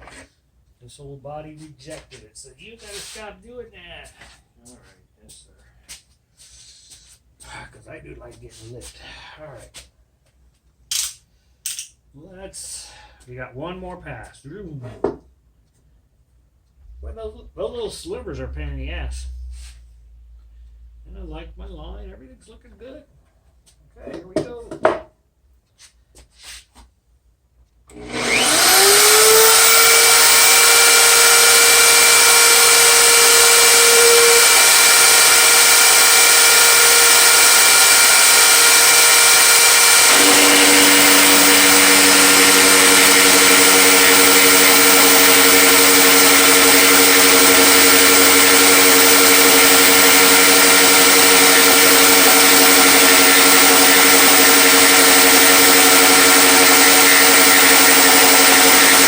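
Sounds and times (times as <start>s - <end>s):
power tool motor whining: 27.9s - 59.0s.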